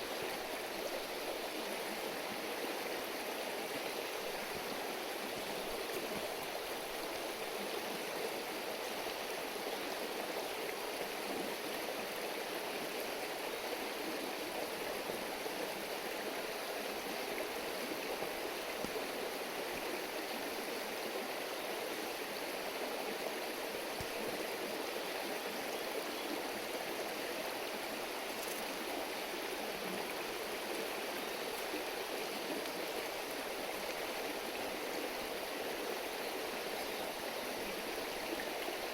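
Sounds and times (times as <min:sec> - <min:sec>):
river stream babbling: 0:00.0 - 0:38.9
faint clicks: 0:28.3 - 0:28.7.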